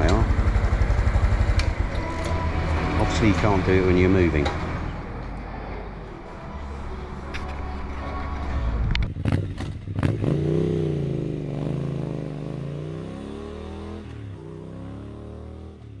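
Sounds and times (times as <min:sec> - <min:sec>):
motorbike engine running: 0:00.0 - 0:05.2, 0:09.0 - 0:16.0.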